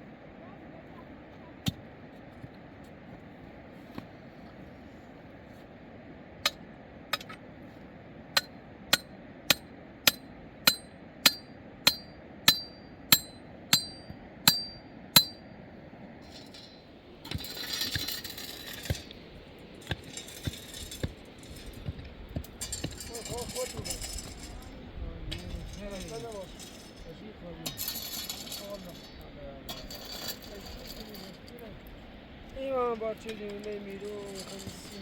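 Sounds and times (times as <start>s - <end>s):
rough scraping: 16.2s - 32.0s, 32.6s - 35.0s.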